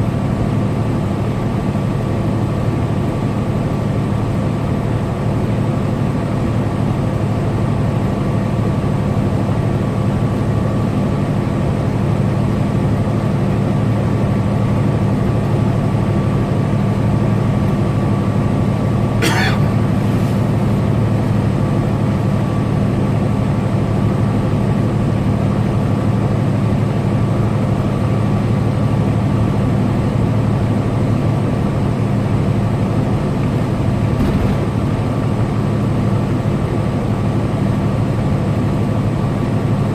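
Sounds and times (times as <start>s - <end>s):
diesel engine drone: 0.0s - 39.9s
road noise: 19.2s - 21.4s.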